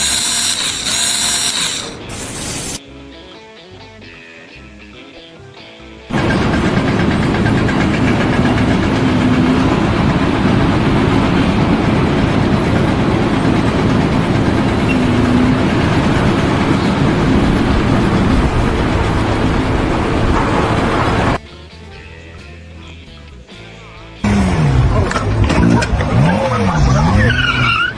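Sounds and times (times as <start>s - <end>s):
engine and machinery rumbling: 0.0s - 2.8s, 5.8s - 21.4s, 24.0s - 27.9s.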